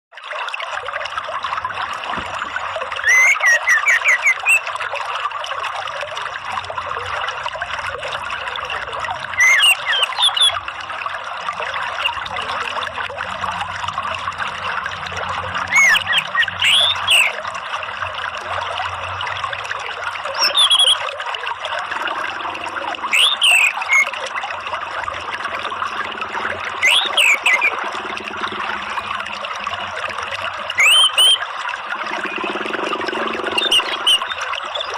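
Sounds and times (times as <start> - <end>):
running water: 0.2 - 34.9
thrush singing whistled phrases: 2.9 - 4.7, 9.4 - 10.6, 15.7 - 17.4, 20.3 - 21.1, 22.4 - 24.3, 26.4 - 28.0, 30.7 - 31.4, 32.2 - 34.9.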